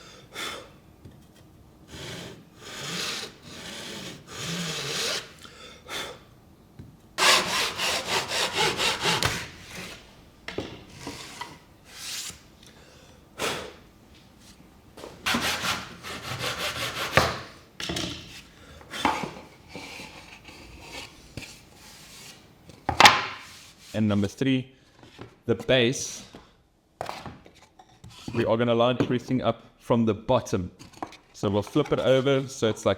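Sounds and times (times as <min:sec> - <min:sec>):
hand saw cutting wood: 0:01.9 - 0:05.4, 0:07.2 - 0:10.0, 0:15.2 - 0:17.5.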